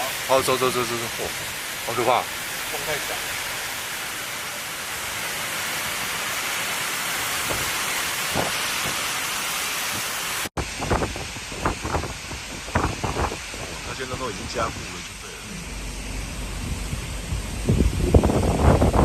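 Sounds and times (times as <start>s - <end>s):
heavy wind-driven rain: 0.0s - 19.0s
wind gusts buffeting microphone: 9.9s - 19.0s.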